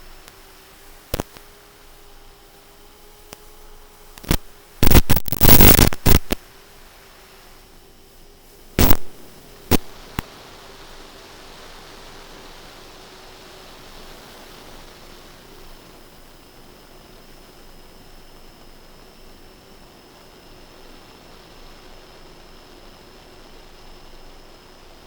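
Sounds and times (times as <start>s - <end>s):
steady hiss: 0.0s - 25.0s
loud static bursts: 1.1s - 1.5s, 4.1s - 6.6s, 8.8s - 12.0s.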